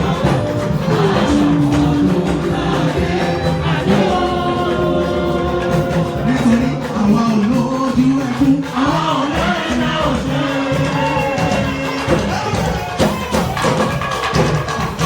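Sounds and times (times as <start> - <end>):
choir singing gospel: 0.0 - 15.0
musical accompaniment: 0.0 - 15.0.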